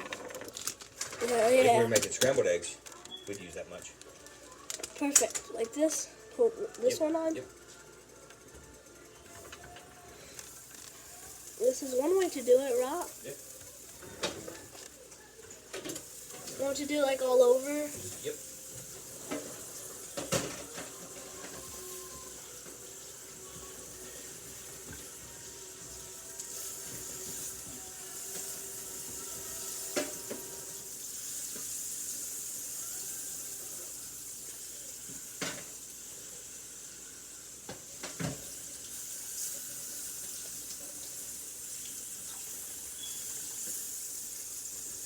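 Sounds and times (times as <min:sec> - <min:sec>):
steak sizzling in frying pan: 0:09.3 - 0:45.0
utensils knocking against pans: 0:18.8 - 0:21.9.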